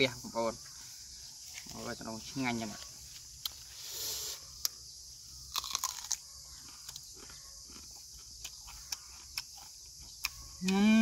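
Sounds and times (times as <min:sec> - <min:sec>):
person chewing banana: 0:05.4 - 0:11.0.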